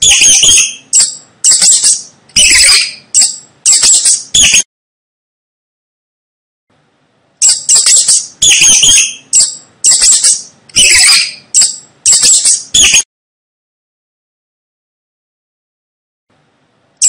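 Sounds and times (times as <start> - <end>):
mouse squeaking: 0.0 - 4.6, 7.4 - 13.0.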